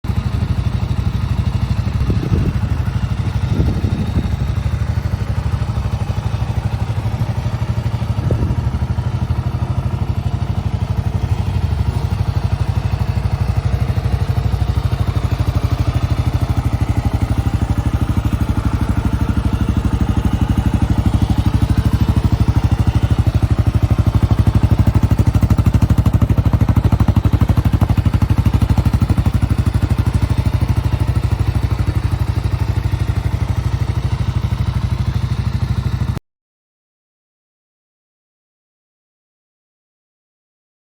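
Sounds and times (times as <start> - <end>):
motorcycle engine idling: 0.0 - 36.2.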